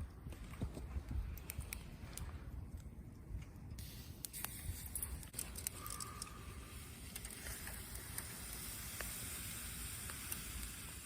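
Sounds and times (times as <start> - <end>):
sizzling hiss with crackles: 3.7 - 11.0.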